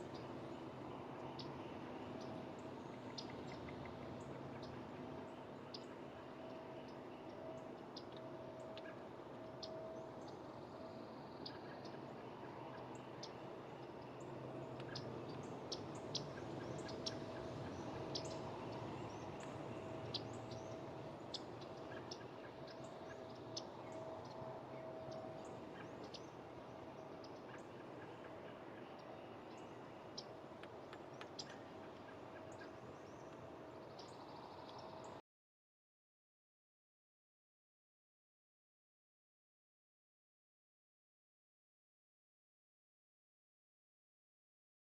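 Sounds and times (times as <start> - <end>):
low background hum: 0.0 - 35.2.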